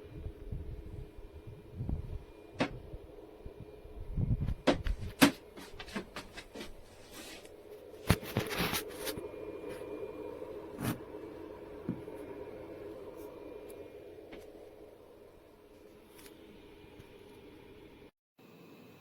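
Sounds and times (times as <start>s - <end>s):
steady low hum: 0.0s - 18.1s.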